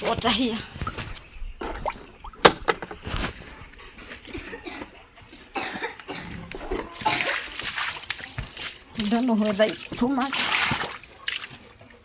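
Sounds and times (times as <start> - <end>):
water container knocking: 1.6 - 3.0.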